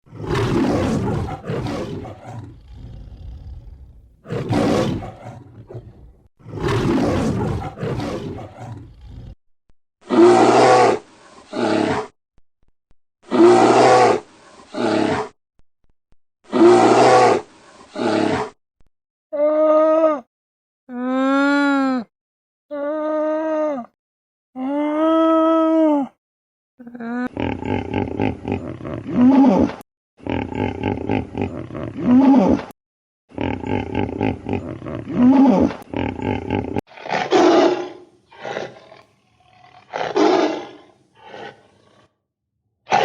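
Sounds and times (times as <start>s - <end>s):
animal roar-like calls: 0.1s - 9.1s, 33.4s - 42.2s.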